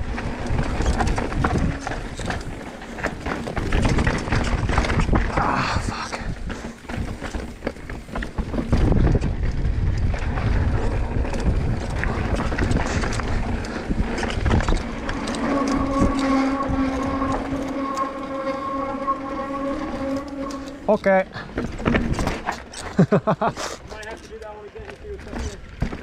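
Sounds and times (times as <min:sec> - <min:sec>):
bike knocks and clatter: 0:00.0 - 0:05.6, 0:06.2 - 0:15.5, 0:21.4 - 0:23.2, 0:24.1 - 0:26.0
wind on microphone: 0:00.0 - 0:22.5
steady pitched hum: 0:11.9 - 0:22.4.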